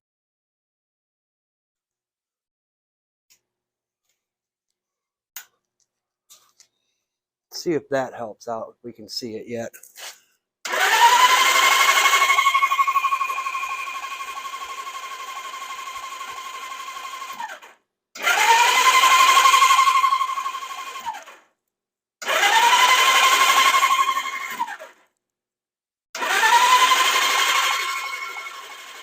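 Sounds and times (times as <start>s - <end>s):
electric starter cranking engine: 10.6s - 21.5s, 22.2s - 25.0s, 26.2s - 29.0s.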